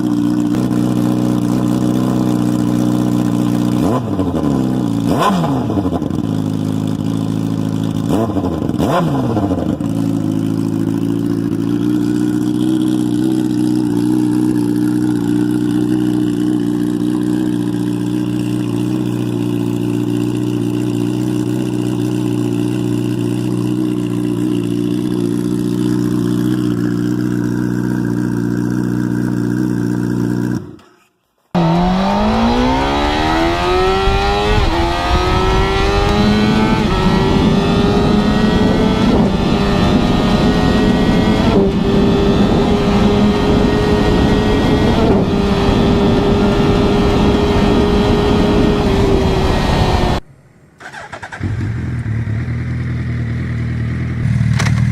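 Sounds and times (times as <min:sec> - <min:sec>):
motorcycle engine revving: 0:00.0 - 0:50.2, 0:50.8 - 0:54.9.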